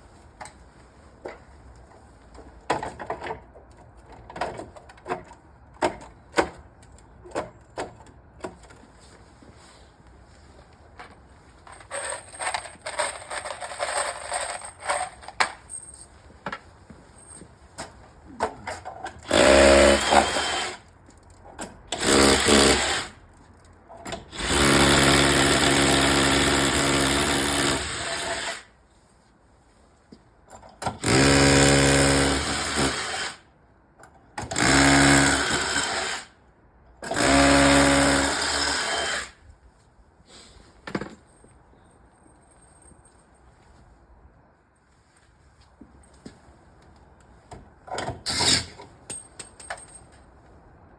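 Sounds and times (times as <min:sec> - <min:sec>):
power drill whining: 0:19.2 - 0:20.8, 0:22.0 - 0:23.1, 0:24.3 - 0:28.6, 0:31.0 - 0:33.4, 0:34.6 - 0:36.2, 0:37.0 - 0:39.4.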